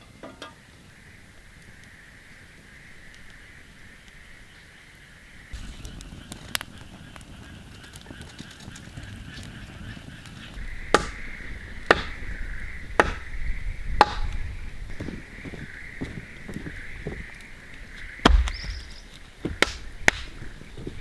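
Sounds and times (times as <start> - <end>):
steady high hum: 5.6 - 7.6
blade chopping wood: 10.9 - 11.3, 11.9 - 12.2, 13.0 - 13.3, 14.0 - 14.4, 18.2 - 20.5.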